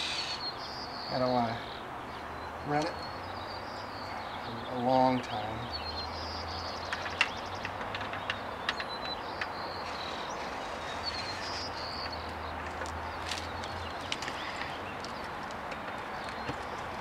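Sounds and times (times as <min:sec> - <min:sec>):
steady hiss: 0:00.0 - 0:00.5
small birds chirping: 0:00.0 - 0:17.0
handling clicks and taps: 0:06.9 - 0:09.6, 0:15.0 - 0:17.0.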